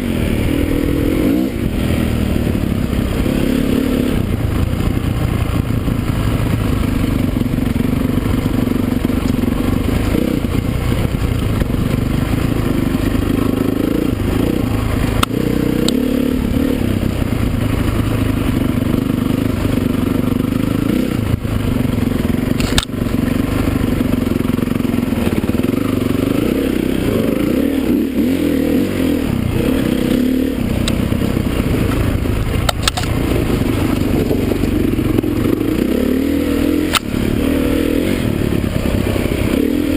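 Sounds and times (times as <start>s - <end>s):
dirt bike engines revving: 0.0s - 39.9s
sharp clicks: 22.6s - 23.0s, 32.6s - 33.2s.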